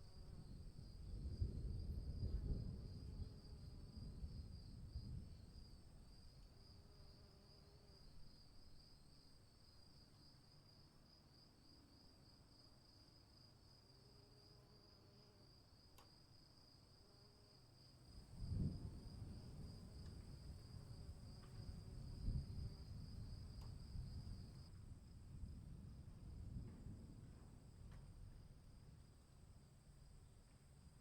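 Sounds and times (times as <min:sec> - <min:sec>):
crickets trilling: 0:17.8 - 0:24.7.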